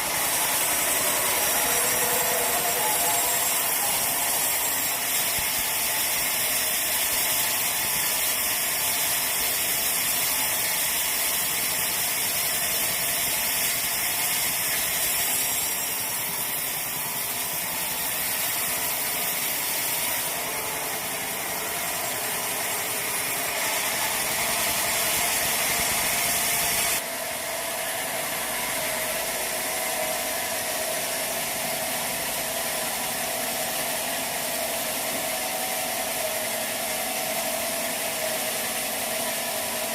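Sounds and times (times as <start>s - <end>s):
bandsaw sawmill running: 0.0s - 39.9s.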